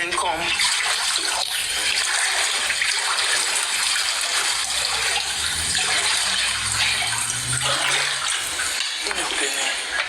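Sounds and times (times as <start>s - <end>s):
floodwater rushing: 0.6s - 10.0s
low hum: 4.4s - 8.8s.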